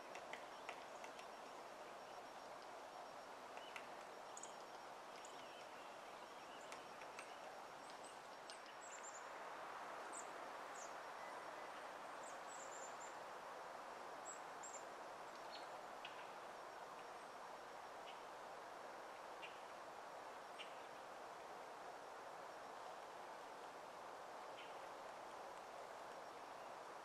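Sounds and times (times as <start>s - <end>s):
woodpecker tapping: 0.0s - 1.6s, 3.5s - 5.7s, 6.5s - 8.8s.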